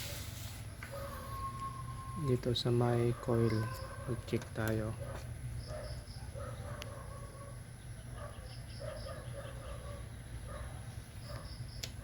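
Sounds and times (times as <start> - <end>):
bird calls: 0.8 - 4.3, 4.9 - 12.0
bird chirping: 0.9 - 4.1, 5.6 - 11.9.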